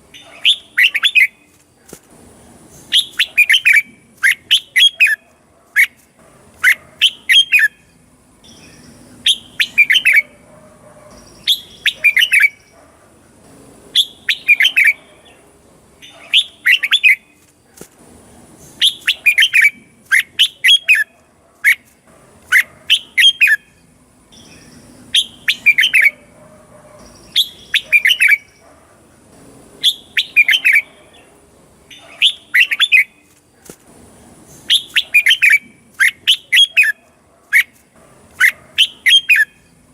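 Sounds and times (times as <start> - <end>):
bird singing quick phrases: 2.7 - 5.2, 6.6 - 10.4, 11.1 - 12.8, 14.0 - 15.4, 22.5 - 26.2, 27.0 - 28.6, 29.8 - 31.0, 31.9 - 33.3, 34.5 - 37.0.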